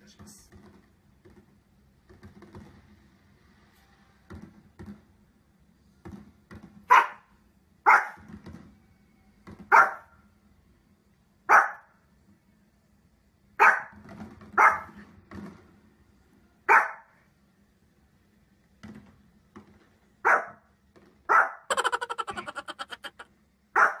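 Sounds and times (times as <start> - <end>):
small dog barking sharply: 11.5 - 11.8, 20.3 - 20.6, 23.8 - 24.0.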